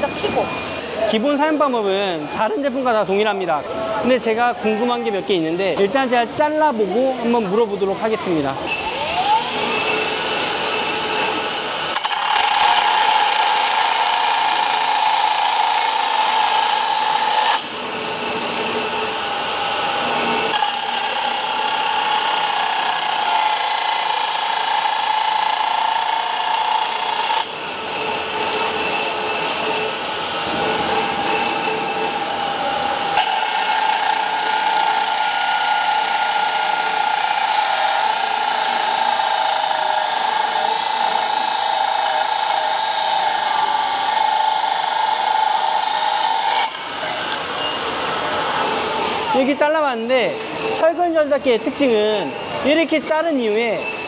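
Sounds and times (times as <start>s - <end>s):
rebar cutter motor whine: 8.6s - 49.4s.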